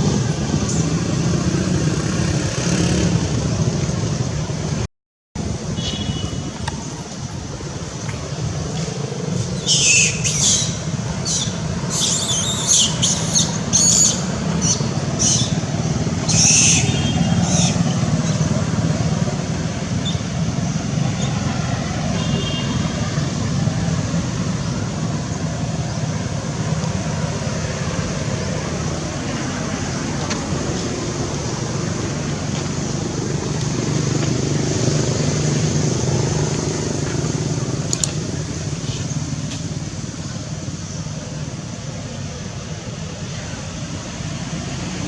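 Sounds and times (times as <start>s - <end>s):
baby monkey shrieking: 9.6s - 15.5s, 16.3s - 17.8s.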